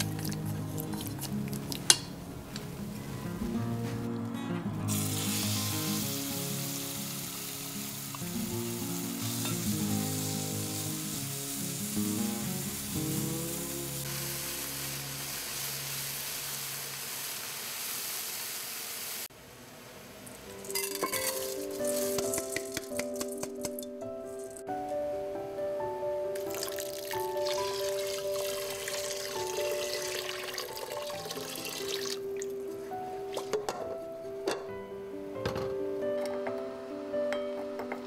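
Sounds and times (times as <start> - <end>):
background music: 0.0 - 16.3, 20.4 - 38.0
chicken sizzling in hot oil: 4.9 - 19.3, 26.4 - 32.6
rice grains pattering into a pot: 20.3 - 24.6, 26.4 - 32.2.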